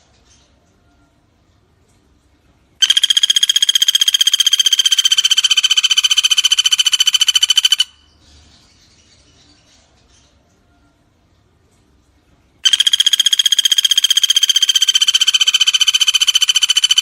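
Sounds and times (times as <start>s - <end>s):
woodpecker rattling call: 2.8s - 8.1s, 12.6s - 17.0s.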